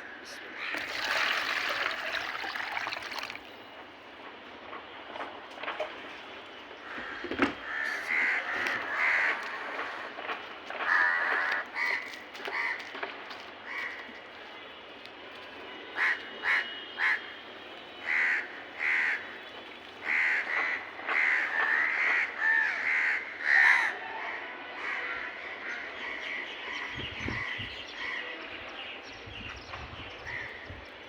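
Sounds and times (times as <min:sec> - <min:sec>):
crows cawing: 0:06.8 - 0:10.2, 0:10.8 - 0:12.9, 0:13.6 - 0:14.2, 0:16.0 - 0:17.3, 0:18.0 - 0:24.0.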